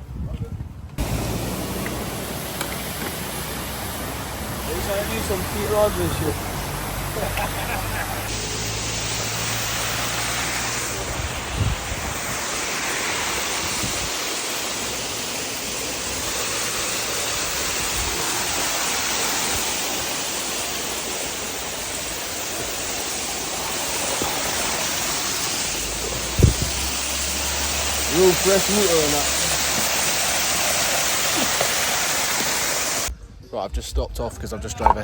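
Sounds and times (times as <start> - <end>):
rushing waterfall: 1.0 - 33.1.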